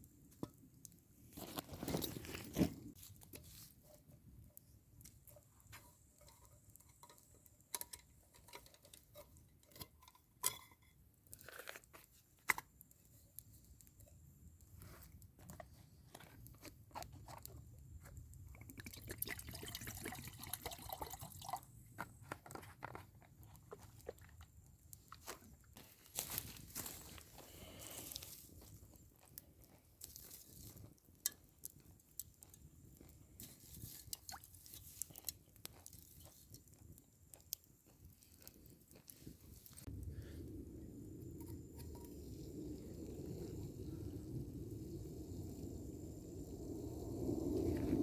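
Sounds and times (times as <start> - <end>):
crunching and rustling: 22.2 - 31.0.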